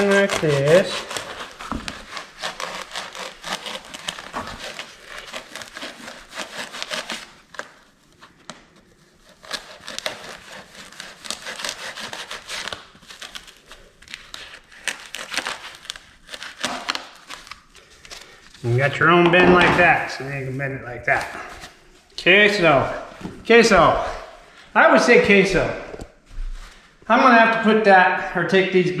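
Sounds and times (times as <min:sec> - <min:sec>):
blade sawing foam: 0:00.0 - 0:07.8, 0:09.1 - 0:13.7.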